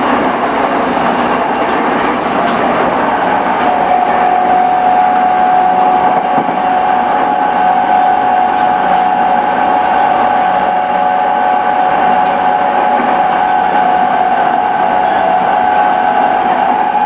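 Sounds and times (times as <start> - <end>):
electric train whine: 0.0 - 17.0
train rumble: 0.0 - 17.0.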